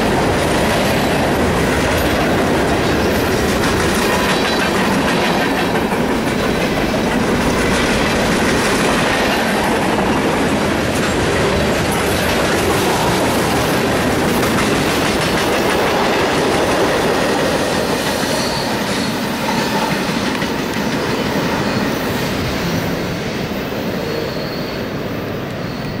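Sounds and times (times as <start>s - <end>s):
steel wheels on track: 0.0s - 26.0s
high wheel squeals: 17.6s - 26.0s.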